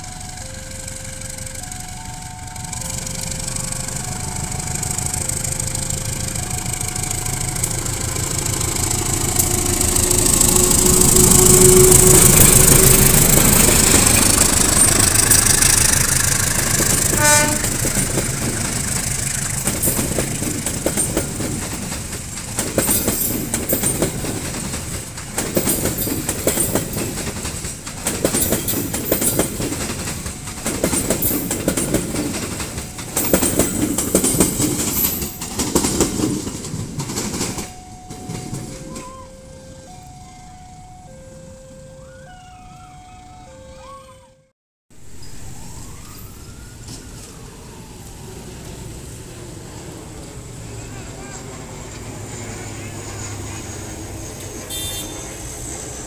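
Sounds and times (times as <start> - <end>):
wheels clicking over rail joints: 0.0 - 41.1
diesel locomotive engine: 0.0 - 44.3, 44.9 - 56.0.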